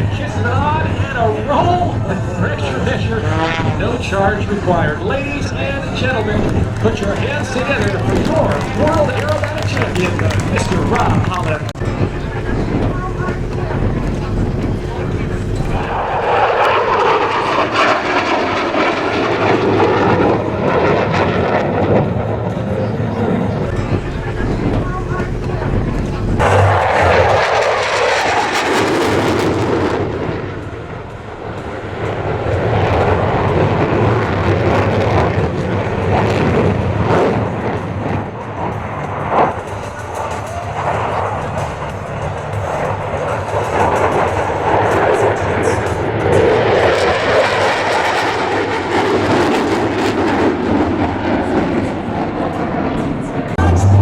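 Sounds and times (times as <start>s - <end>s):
aircraft engine drone: 0.0s - 54.0s.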